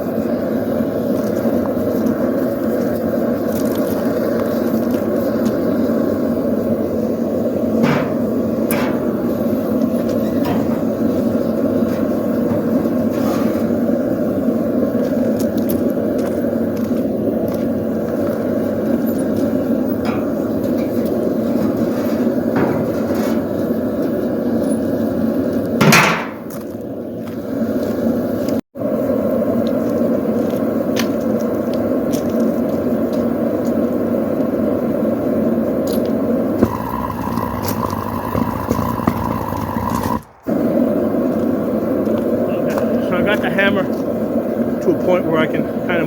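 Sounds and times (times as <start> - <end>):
forge roaring: 3.3 - 26.7, 36.3 - 46.0.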